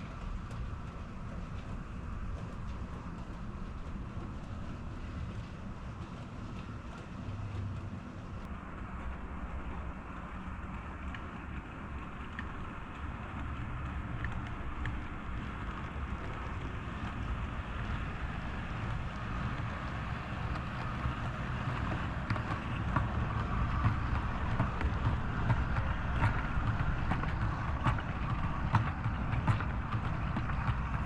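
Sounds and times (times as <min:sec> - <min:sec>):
model train rumbling on track: 0:00.0 - 0:31.0
wheels clicking over rail joints: 0:00.0 - 0:31.0.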